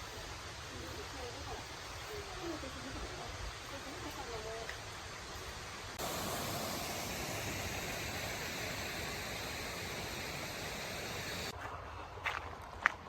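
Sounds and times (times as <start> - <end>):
water rushing: 5.8 - 11.5.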